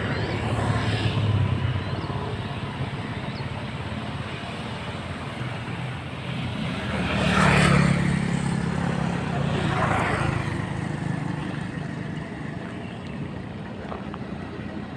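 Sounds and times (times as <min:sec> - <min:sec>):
vehicle passing close: 0:05.6 - 0:12.8.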